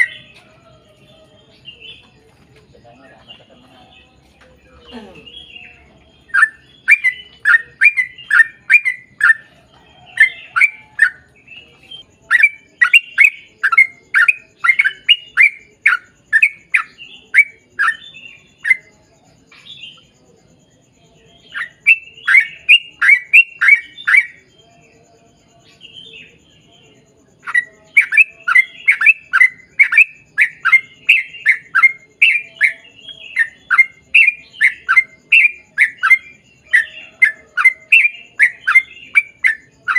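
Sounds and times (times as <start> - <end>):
bird chattering song: 0.0 - 20.2, 20.8 - 39.9.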